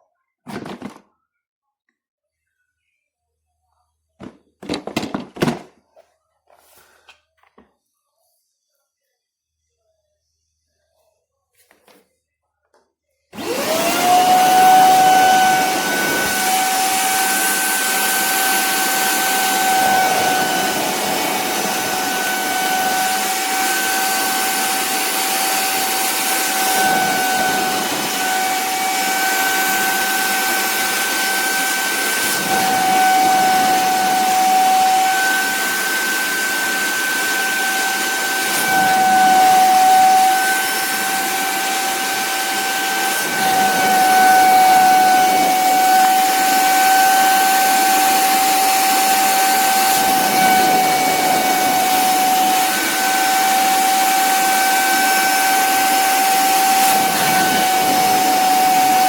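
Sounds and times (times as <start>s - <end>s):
vacuum suction motor whining: 13.4s - 59.0s.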